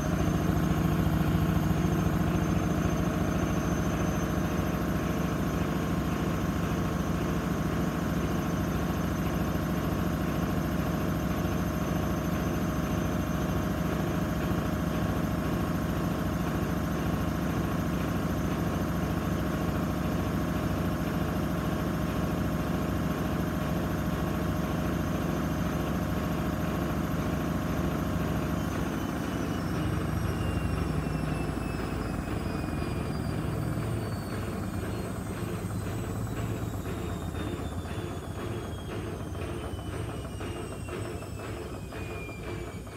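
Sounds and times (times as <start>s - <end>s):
washing machine spinning with whine: 0.0s - 42.9s.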